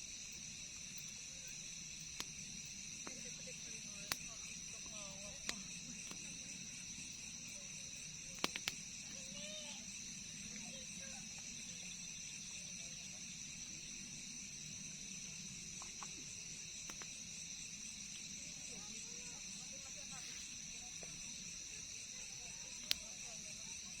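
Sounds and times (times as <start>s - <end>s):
crickets and insects trilling: 0.0s - 24.0s
sharp clicks: 8.4s - 8.8s.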